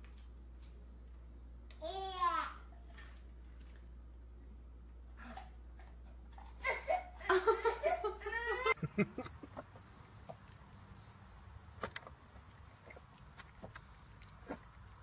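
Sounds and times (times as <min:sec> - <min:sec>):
person laughing: 0:06.6 - 0:09.8.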